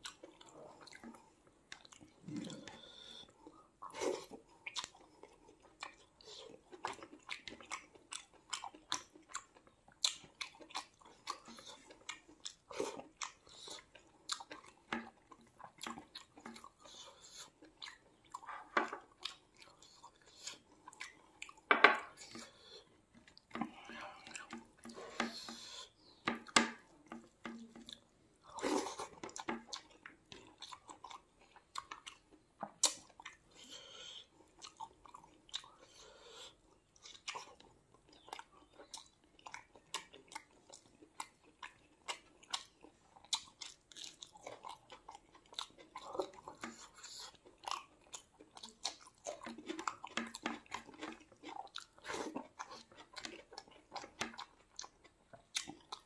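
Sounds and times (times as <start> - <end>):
chewing and biting food: 0.0 - 56.0
mouth clicks and smacks: 29.0 - 33.5.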